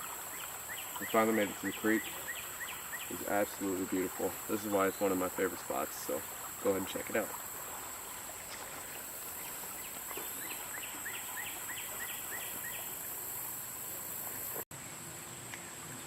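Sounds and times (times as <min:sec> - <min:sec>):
creek flowing: 0:00.0 - 0:16.0
insect hiss: 0:00.0 - 0:16.0
bird chirping: 0:00.3 - 0:04.0, 0:09.3 - 0:13.0.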